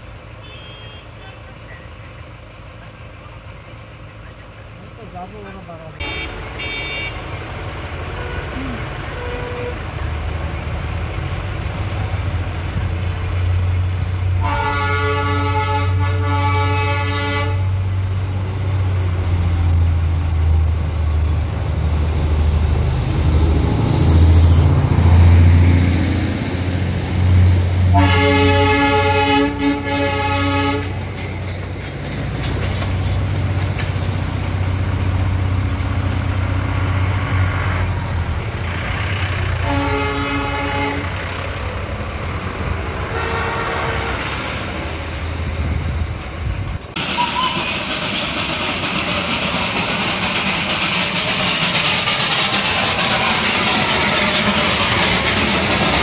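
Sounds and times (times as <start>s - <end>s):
low rumble of idling vehicles: 0.0s - 6.0s
train horn blasts: 6.0s - 7.3s, 8.2s - 9.8s, 14.4s - 17.8s, 27.9s - 31.0s, 39.6s - 41.2s, 43.0s - 44.5s.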